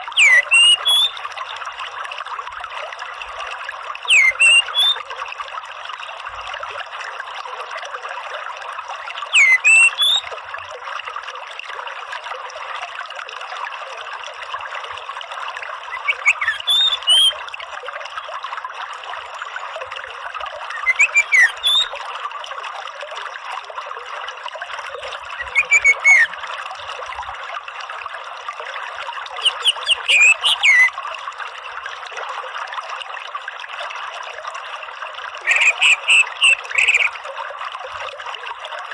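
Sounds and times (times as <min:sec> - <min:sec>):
running water: 0:00.0 - 0:38.9
thrush whistling: 0:00.2 - 0:01.2, 0:04.1 - 0:05.0, 0:09.3 - 0:10.2, 0:15.9 - 0:17.3, 0:20.7 - 0:21.9, 0:25.4 - 0:26.3, 0:29.4 - 0:30.9, 0:35.5 - 0:37.1.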